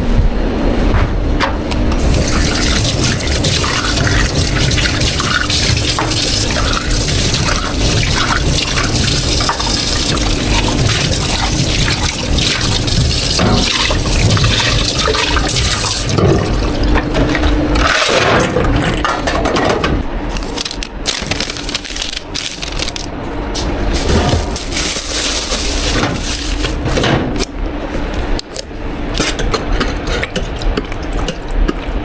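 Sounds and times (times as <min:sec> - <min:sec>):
tap water running into sink: 0:02.1 - 0:17.0.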